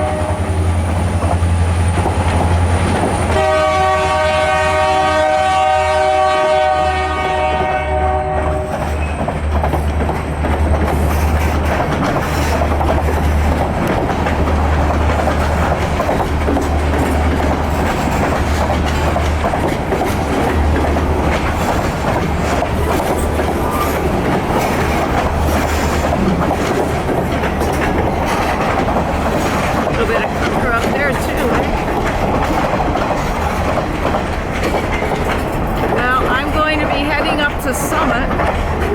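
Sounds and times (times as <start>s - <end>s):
train horn blast: 0.0s - 0.6s, 3.3s - 8.8s
wheels clattering over rails: 8.2s - 38.9s.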